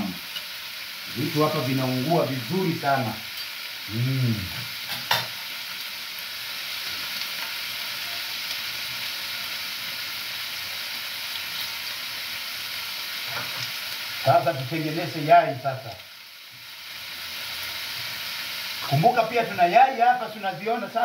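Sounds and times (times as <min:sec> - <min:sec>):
liver sizzling in a pan: 0:00.0 - 0:21.0.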